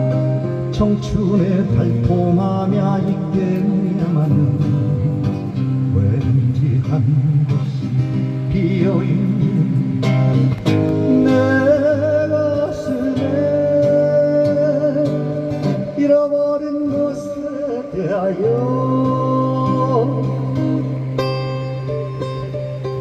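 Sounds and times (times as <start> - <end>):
acoustic guitar: 0.0 - 23.0
person singing long wavering notes: 11.1 - 23.0.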